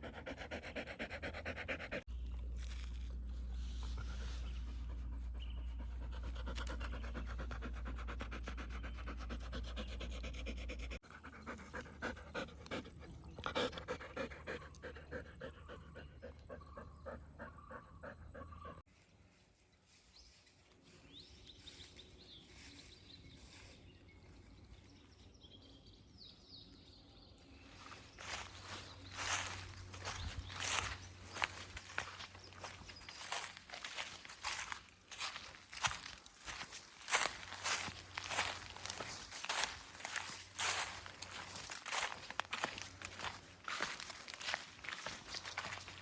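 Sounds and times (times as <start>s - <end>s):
dog panting: 0.0s - 2.1s, 3.9s - 18.8s.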